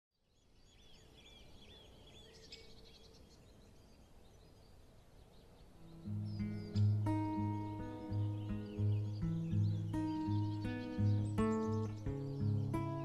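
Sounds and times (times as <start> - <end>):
small birds chirping: 0.2 - 13.0
music: 5.9 - 13.0.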